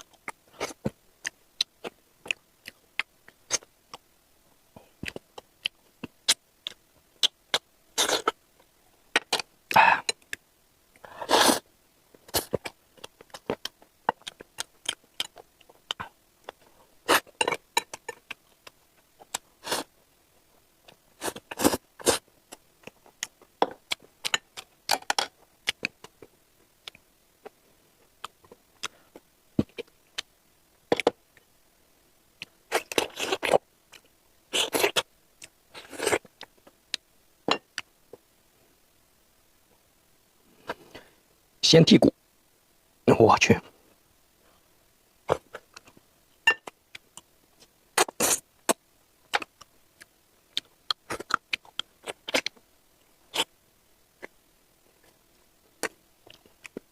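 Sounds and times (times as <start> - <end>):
chewing and mouth noises: 12.2 - 19.9, 46.6 - 52.6.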